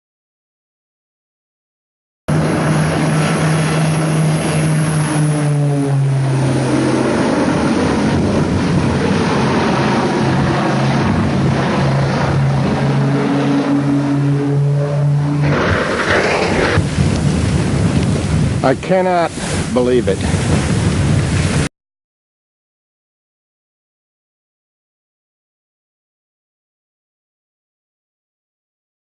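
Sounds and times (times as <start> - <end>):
heavy wind noise: 2.3 - 21.7
propeller aircraft engine humming: 2.3 - 21.7.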